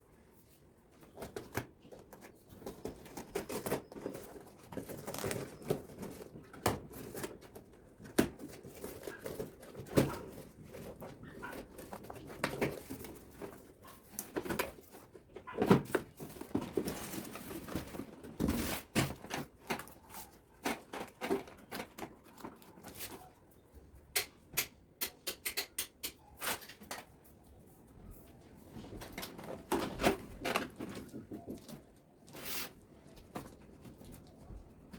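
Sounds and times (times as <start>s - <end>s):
packaging rustling: 1.9s - 23.3s.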